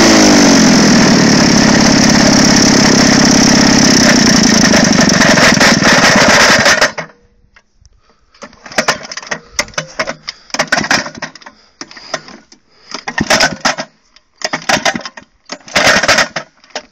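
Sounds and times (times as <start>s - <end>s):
lawnmower engine running: 0.0s - 7.2s, 8.4s - 16.9s
clicking and clattering: 8.4s - 16.9s.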